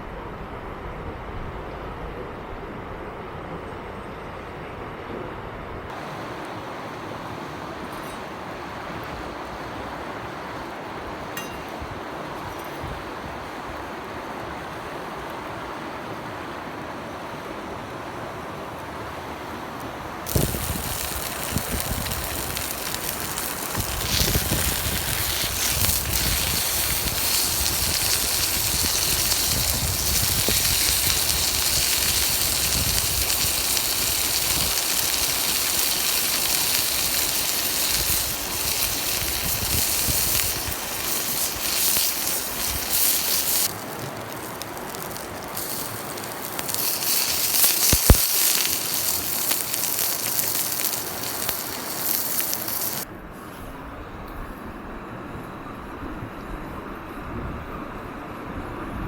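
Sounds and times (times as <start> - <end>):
campfire crackling: 5.9 - 53.1
mountain stream rushing: 5.9 - 53.1
sharp snap of fire: 20.3 - 53.1.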